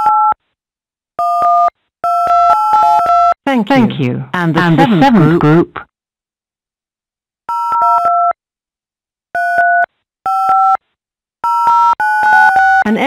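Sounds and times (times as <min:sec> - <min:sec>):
touch-tone keypad beeps: 0:07.5 - 0:08.4.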